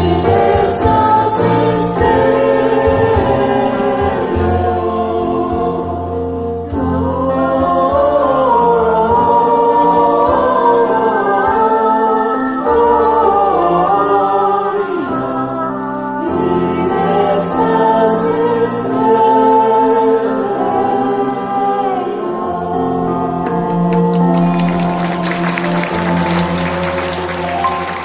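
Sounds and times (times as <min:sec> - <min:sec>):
choir singing: 0:00.0 - 0:28.0
applause: 0:23.9 - 0:28.0.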